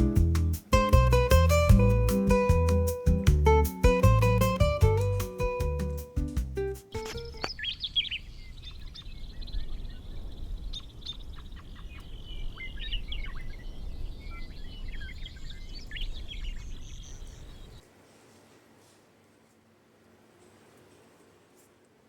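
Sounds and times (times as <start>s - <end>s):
steady low rumble: 0.0s - 6.8s
plucked guitar phrase: 0.0s - 7.4s
small birds chirping: 7.0s - 17.8s.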